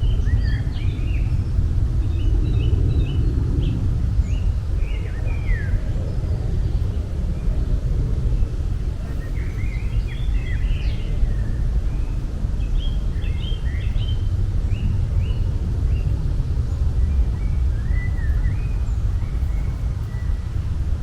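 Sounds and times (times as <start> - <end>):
steady low rumble: 0.0 - 21.0
small birds chirping: 9.0 - 20.6.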